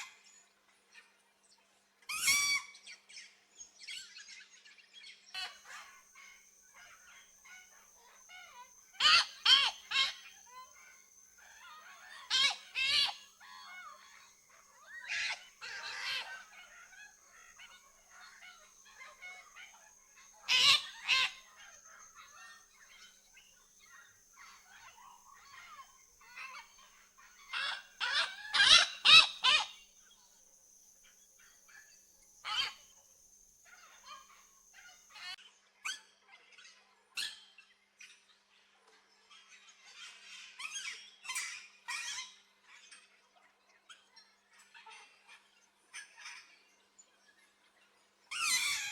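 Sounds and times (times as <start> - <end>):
birds squawking harshly: 8.4 - 10.8, 11.4 - 23.1, 24.2 - 29.8, 32.5 - 32.8, 48.3 - 48.9.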